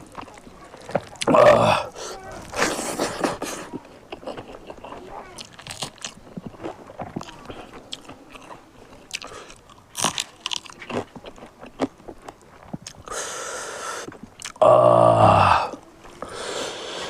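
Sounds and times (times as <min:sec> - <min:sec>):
chewing and crunching food: 0:00.0 - 0:17.0
steady hissing: 0:13.1 - 0:14.2, 0:15.8 - 0:17.0.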